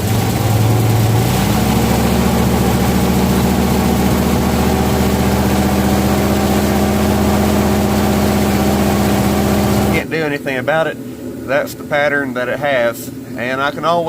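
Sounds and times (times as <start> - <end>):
car drivetrain running rough: 0.0 - 10.0.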